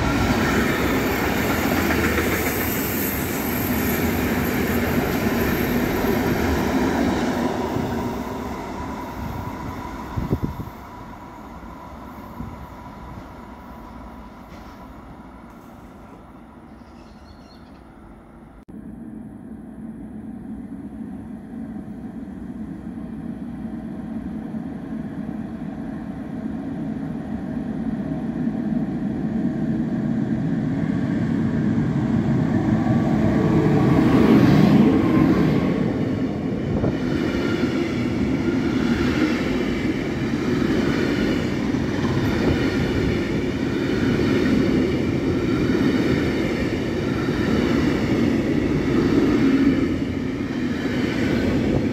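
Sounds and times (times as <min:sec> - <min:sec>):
train rumbling past: 0:00.0 - 0:51.9.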